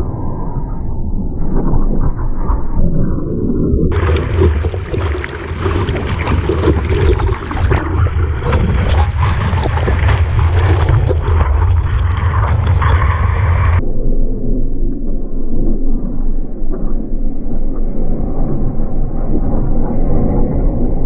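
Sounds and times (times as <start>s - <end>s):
rushing water in surf: 3.9s - 13.8s
wind buffeting microphone: 3.9s - 13.8s.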